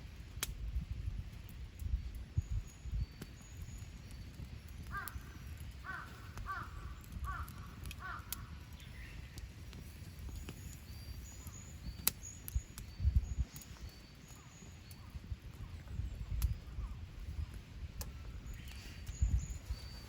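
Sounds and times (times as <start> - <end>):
campfire crackling: 0.0 - 20.0
small birds chirping: 1.7 - 20.0
crow cawing: 4.9 - 5.2, 5.8 - 8.5.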